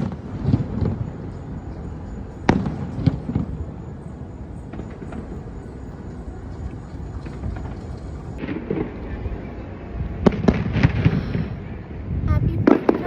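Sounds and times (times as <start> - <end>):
steady low rumble: 0.0 - 13.0
fireworks cracking and popping: 7.2 - 9.3, 12.5 - 13.0.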